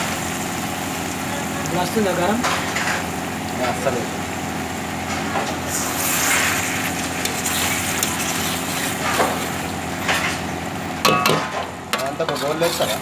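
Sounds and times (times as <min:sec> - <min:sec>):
chicken sizzling in a pan: 0:00.0 - 0:11.0
spatula stirring and scraping: 0:05.1 - 0:10.6, 0:12.2 - 0:13.0.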